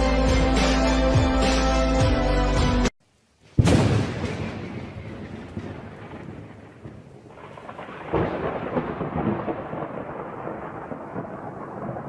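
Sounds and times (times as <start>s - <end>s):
falling rain: 3.0s - 12.0s
thunder rumbling: 3.6s - 12.0s.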